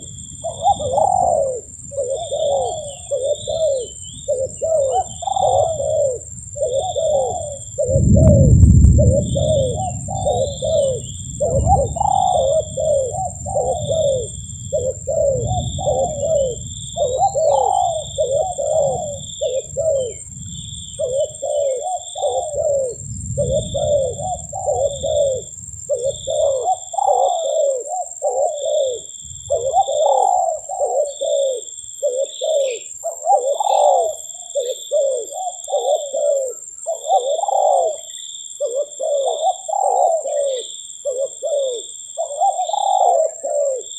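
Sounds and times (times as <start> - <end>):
dove cooing: 0.0 - 43.9
low rumble: 7.5 - 17.2.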